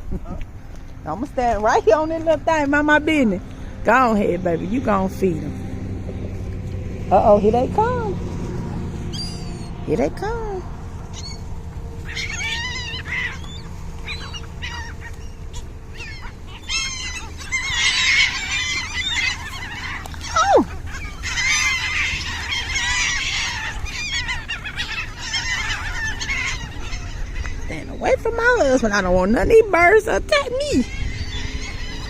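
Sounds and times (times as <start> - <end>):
flock of birds calling: 7.1 - 32.0.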